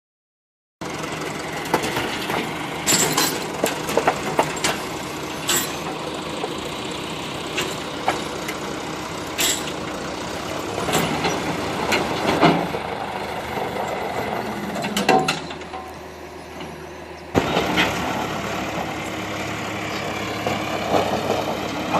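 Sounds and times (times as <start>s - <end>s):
heavy truck engine running: 0.8s - 21.9s
metallic clanks and knocks: 1.7s - 6.0s, 9.4s - 9.8s, 10.8s - 12.8s, 14.7s - 16.0s.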